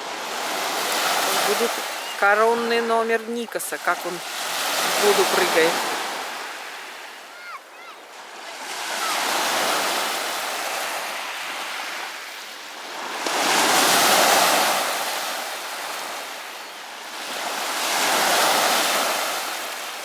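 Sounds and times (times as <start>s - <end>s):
sea waves washing on sandy shore: 0.0s - 20.0s.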